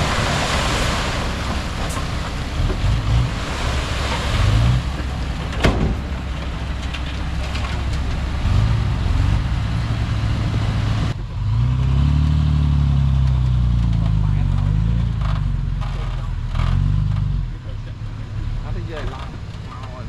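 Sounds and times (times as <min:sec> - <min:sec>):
diesel engine running: 0:00.0 - 0:11.8.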